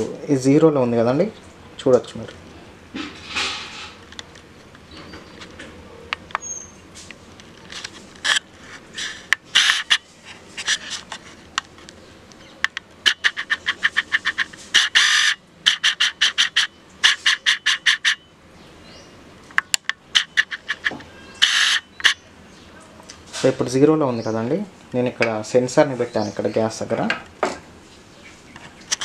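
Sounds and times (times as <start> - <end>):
rapid short chirps: 9.0 - 10.9, 13.0 - 18.3, 20.1 - 22.3.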